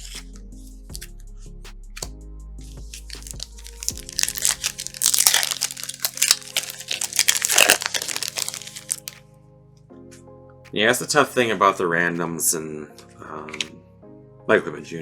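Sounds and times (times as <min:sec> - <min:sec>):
quiet background music: 0:00.0 - 0:15.0
plastic wrapper crinkling and tearing: 0:02.9 - 0:09.2.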